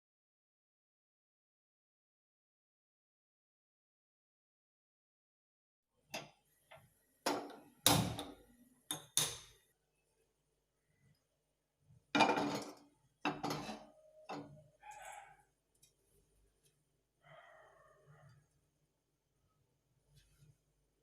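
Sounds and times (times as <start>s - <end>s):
dishes and utensils clinking: 12.2s - 14.6s.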